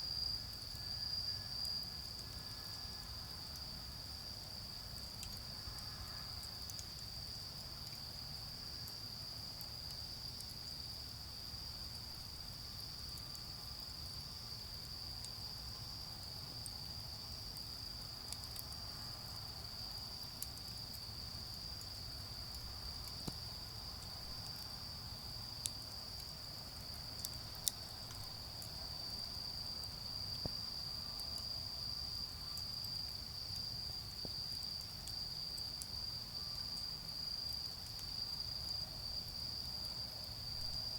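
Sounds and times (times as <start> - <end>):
crickets chirping: 0.0 - 40.9
charcoal fire crackling: 20.0 - 33.2.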